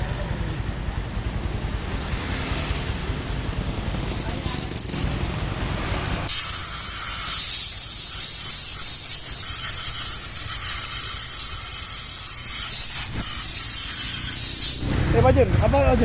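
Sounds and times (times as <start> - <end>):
aerosol can spraying: 6.3 - 14.8.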